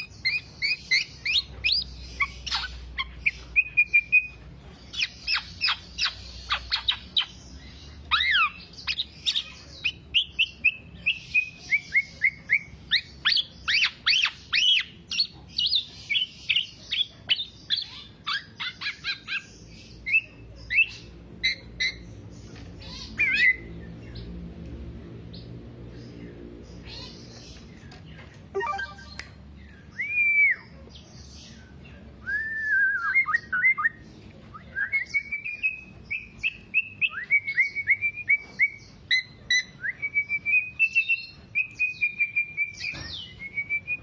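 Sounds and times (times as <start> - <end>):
bird singing sharp chirps: 28.6 - 29.4.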